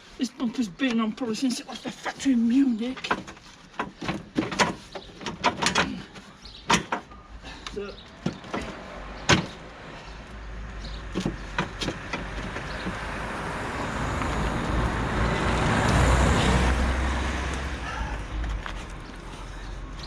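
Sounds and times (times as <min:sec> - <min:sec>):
plastic bumper clicks and knocks: 0:03.0 - 0:07.2, 0:08.2 - 0:09.6, 0:11.1 - 0:13.0
passing vehicle road noise: 0:08.4 - 0:20.0.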